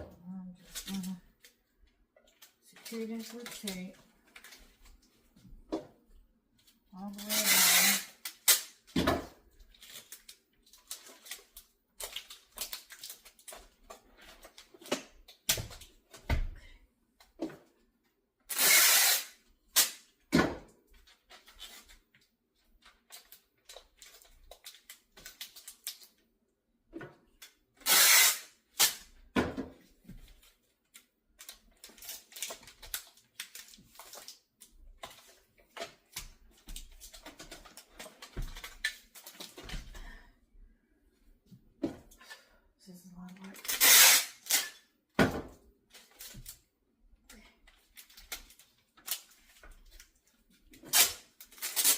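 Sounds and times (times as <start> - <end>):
duct tape ripping off roll: 7.2 - 8.8, 18.5 - 20.1, 27.8 - 29.1, 43.6 - 44.8, 50.8 - 51.9.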